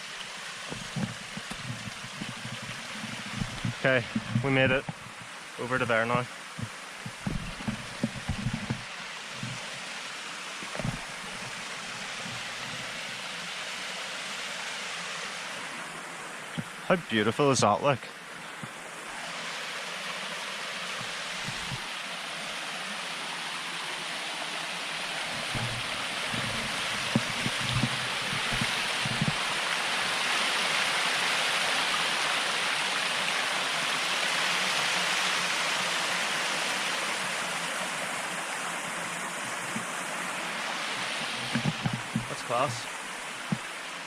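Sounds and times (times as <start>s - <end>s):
waterfall rushing: 0.0s - 44.0s
low thumps: 0.7s - 5.3s, 6.6s - 9.6s, 25.4s - 29.4s.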